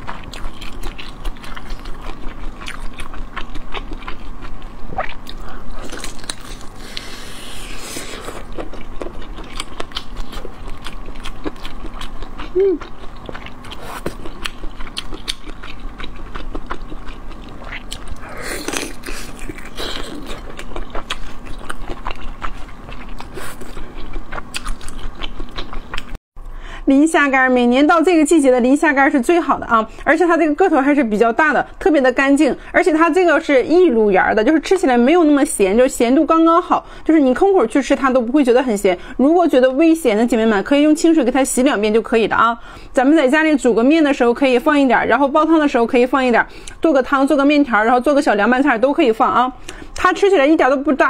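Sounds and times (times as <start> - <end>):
crunchy chewing and biting: 0.0 - 26.2.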